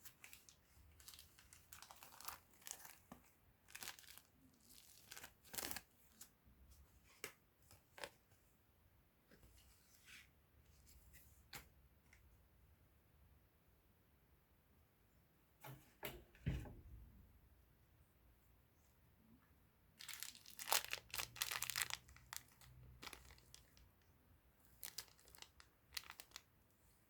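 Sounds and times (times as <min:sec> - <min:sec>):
packaging crinkling and rustling: 0:00.0 - 0:05.9, 0:20.0 - 0:23.9, 0:24.7 - 0:26.5.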